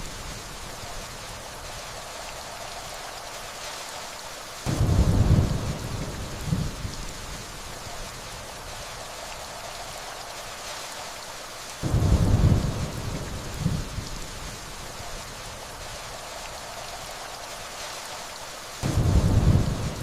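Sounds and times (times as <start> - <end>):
steady rain falling: 0.0 - 20.0
thunder rumbling: 4.7 - 7.3, 11.8 - 14.7, 18.8 - 20.0.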